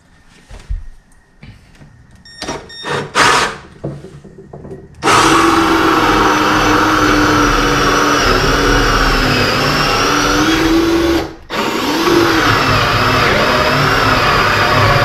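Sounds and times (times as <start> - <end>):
electric drill boring through wood: 2.8 - 3.6, 5.0 - 15.0.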